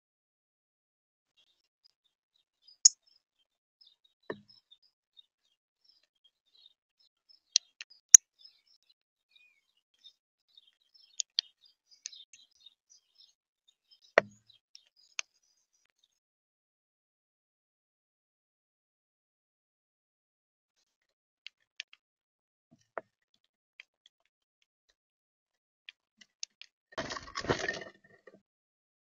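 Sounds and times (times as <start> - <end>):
small birds chirping: 1.3 - 16.2
birds clicking and tapping: 10.6 - 12.5.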